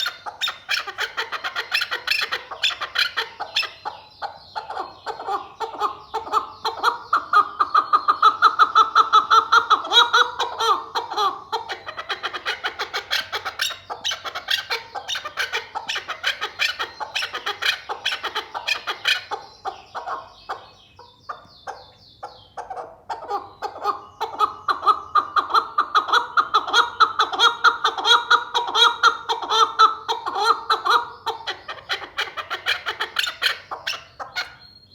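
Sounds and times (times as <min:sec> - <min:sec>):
partridge clucking calls: 0:00.0 - 0:34.7.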